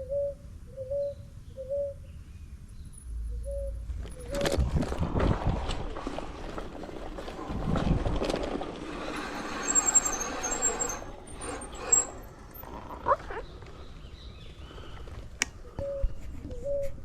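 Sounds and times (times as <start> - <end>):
wind noise: 3.9 - 13.4
bicycle tyres rolling on dirt: 3.9 - 15.4
short high squeals: 9.0 - 12.6.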